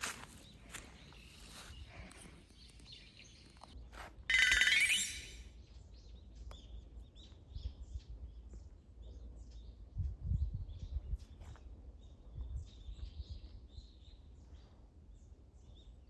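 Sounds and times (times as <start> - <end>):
small birds chirping: 0.0 - 16.0
loud shrill sound: 4.3 - 5.5.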